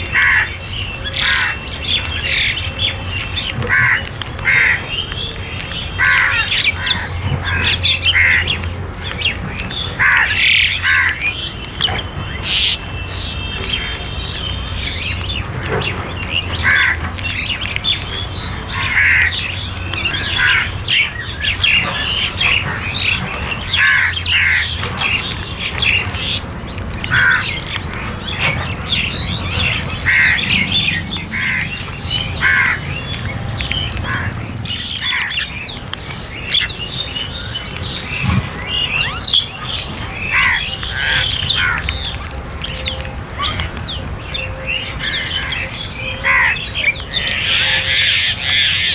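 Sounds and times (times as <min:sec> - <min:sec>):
crows cawing: 0:00.1 - 0:02.6, 0:03.6 - 0:05.0, 0:06.0 - 0:08.6, 0:09.8 - 0:11.5, 0:16.6 - 0:17.6, 0:18.6 - 0:25.2, 0:27.1 - 0:27.8, 0:28.6 - 0:35.5, 0:39.1 - 0:42.1, 0:45.1 - 0:48.9.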